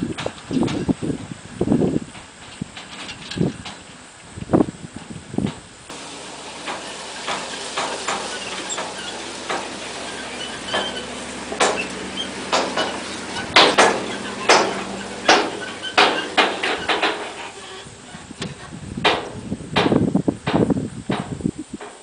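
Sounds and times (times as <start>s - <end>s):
low engine hum: 0.0s - 21.9s
sharp knocks and clanks: 5.0s - 22.0s.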